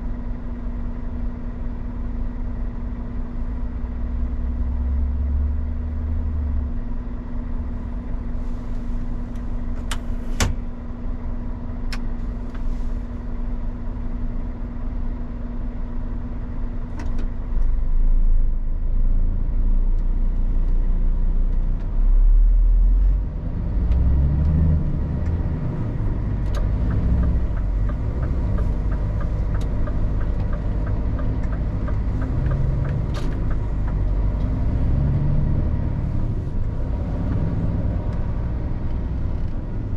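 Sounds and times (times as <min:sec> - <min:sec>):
truck diesel engine running: 0:24.8 - 0:39.9.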